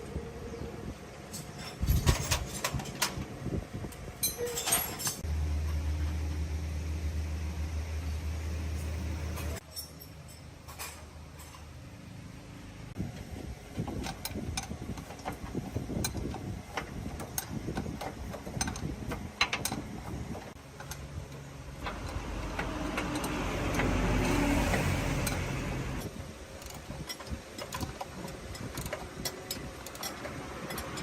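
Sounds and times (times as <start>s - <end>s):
metal tools clicking and knocking: 1.3s - 3.2s, 4.2s - 5.2s, 9.4s - 11.7s, 13.7s - 31.0s.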